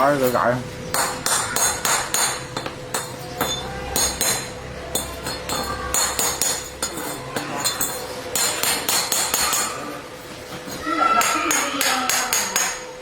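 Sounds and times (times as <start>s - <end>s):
sharp metallic taps: 0.9s - 9.7s, 11.2s - 12.9s.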